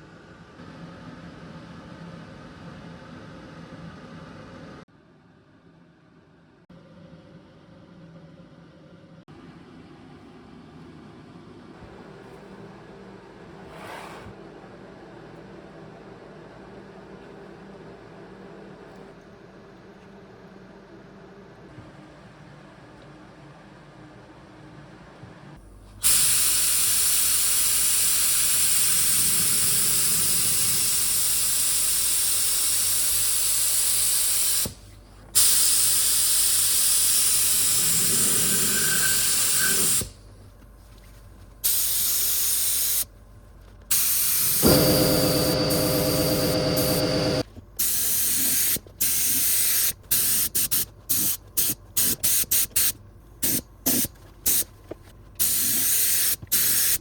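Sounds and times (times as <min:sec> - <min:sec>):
spray gun hissing: 0:35.4 - 0:40.1, 0:41.6 - 0:43.1, 0:43.9 - 0:54.6, 0:55.4 - 0:57.0
low hum: 0:44.6 - 0:47.6.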